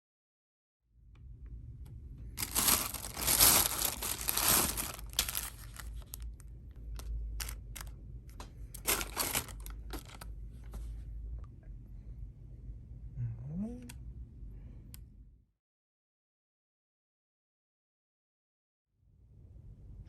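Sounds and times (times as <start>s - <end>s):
packaging crinkling and rustling: 2.4s - 7.9s, 8.7s - 10.3s.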